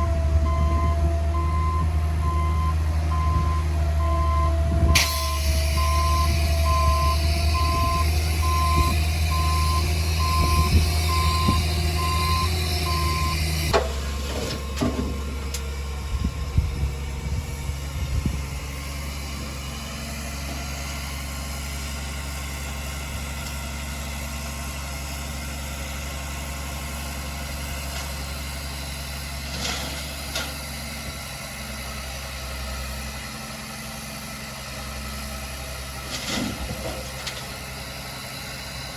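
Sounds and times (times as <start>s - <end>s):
reversing alarm beeping: 0.0s - 13.7s
truck engine running: 0.0s - 38.9s.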